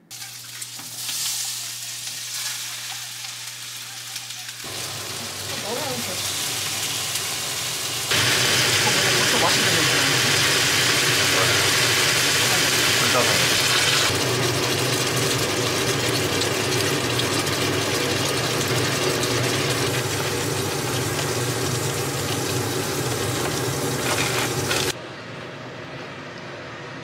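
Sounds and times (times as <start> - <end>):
food sizzling in frying pans: 0.0 - 25.0.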